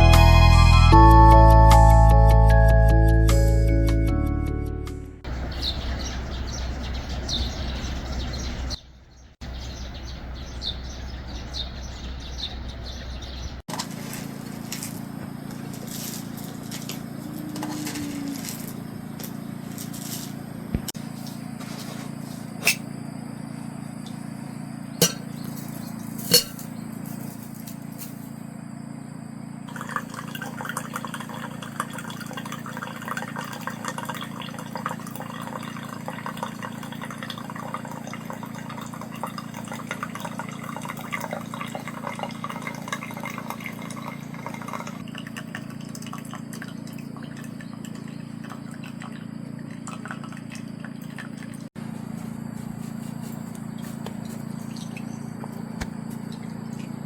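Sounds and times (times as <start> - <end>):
steady low hum: 5.3 - 29.9, 43.2 - 57.0
liquid pouring and trickling: 29.7 - 51.8, 54.1 - 55.3.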